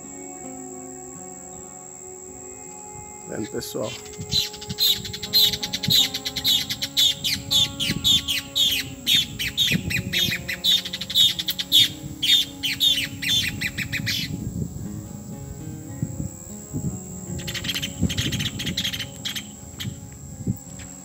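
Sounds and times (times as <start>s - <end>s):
bird calling loudly: 3.3s - 14.5s, 17.4s - 20.0s.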